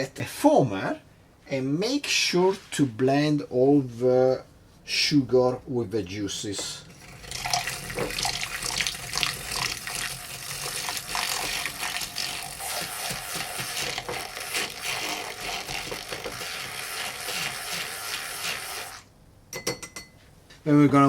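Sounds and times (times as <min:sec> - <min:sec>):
liquid rattling and splashing: 0:06.9 - 0:19.0
drink frother motor whine: 0:06.9 - 0:19.1.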